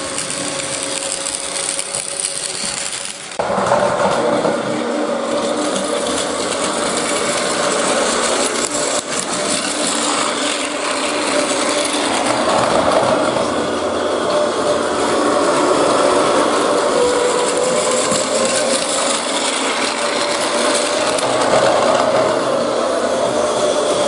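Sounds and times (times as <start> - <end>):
toy train motor whirring: 0.0 - 24.0.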